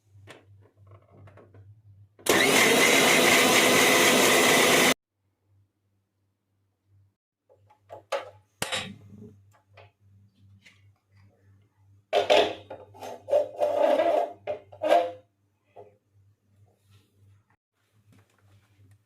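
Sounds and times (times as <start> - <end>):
objects tapping and knocking: 0.2 - 1.8, 7.4 - 11.1, 12.1 - 16.0.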